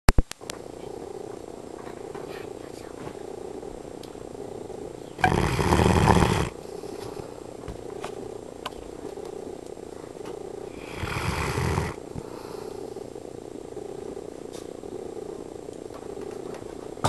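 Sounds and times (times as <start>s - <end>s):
dog snoring: 3.2s - 7.4s, 8.9s - 16.6s.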